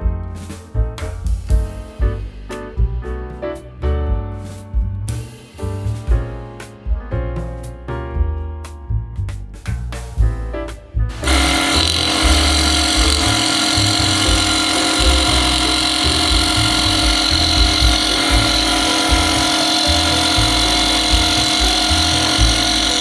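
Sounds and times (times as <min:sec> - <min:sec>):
small power tool whining: 0:11.1 - 0:23.0.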